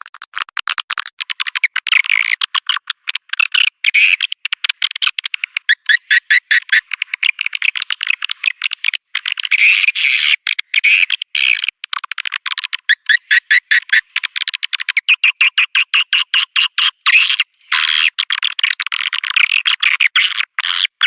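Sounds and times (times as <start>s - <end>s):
bird call playback clicking chirps: 0.0s - 20.9s
continuous bird twittering: 1.6s - 18.2s.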